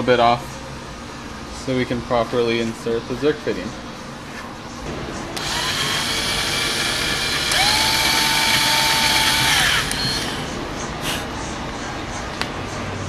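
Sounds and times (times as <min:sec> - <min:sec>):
power drill whirring: 0:05.4 - 0:10.6.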